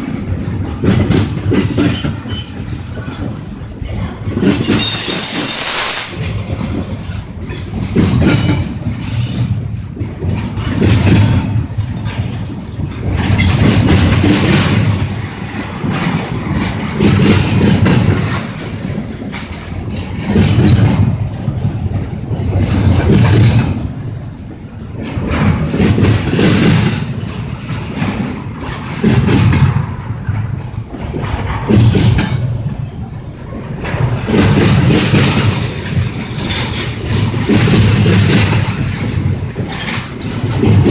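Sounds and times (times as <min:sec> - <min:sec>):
train wheels rumbling on rails: 0:00.0 - 0:40.9
high wheel squeal: 0:04.5 - 0:06.8.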